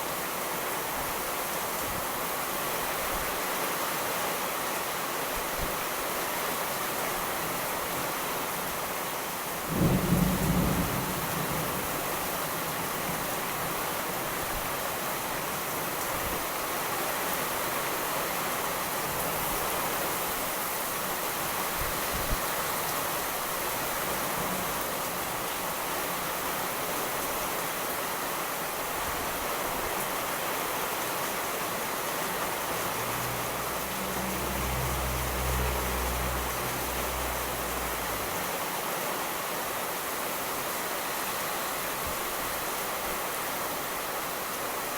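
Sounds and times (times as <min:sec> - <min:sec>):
heavy rain: 0:00.0 - 0:44.9
distant thunder rumble: 0:09.7 - 0:12.2.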